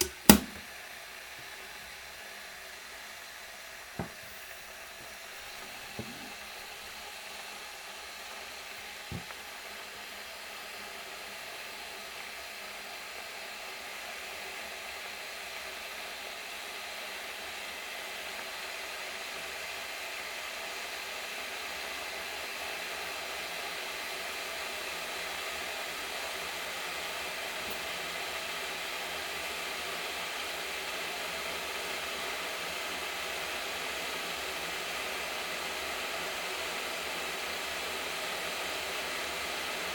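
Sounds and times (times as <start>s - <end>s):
brief knock: 0.0s - 0.6s, 4.0s - 4.2s
kettle heating water hiss: 0.0s - 39.9s.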